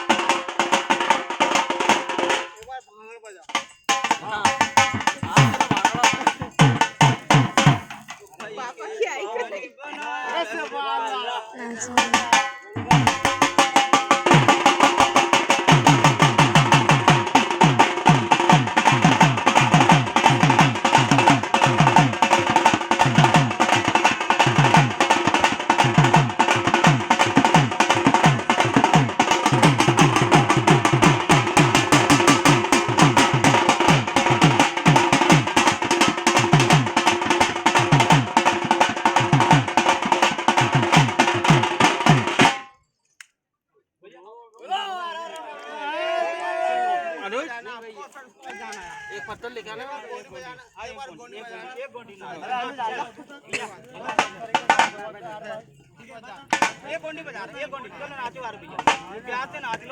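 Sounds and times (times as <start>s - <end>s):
fast deep drumming: 3.9s - 8.2s, 11.9s - 42.6s.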